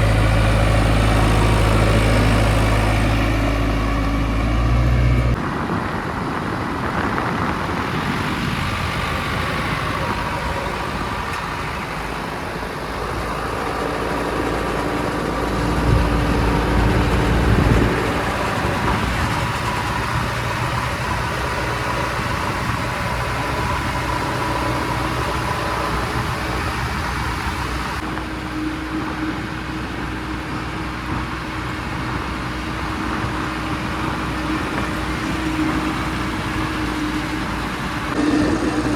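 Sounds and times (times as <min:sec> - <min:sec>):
diesel backhoe engine running: 0:00.0 - 0:38.9
steady whine: 0:33.0 - 0:38.9.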